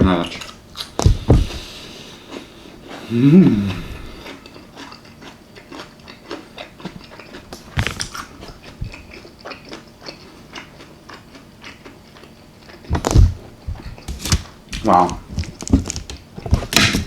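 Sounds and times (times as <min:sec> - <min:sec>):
person chewing and biting food: 0:00.1 - 0:17.0
person humming: 0:03.0 - 0:04.3.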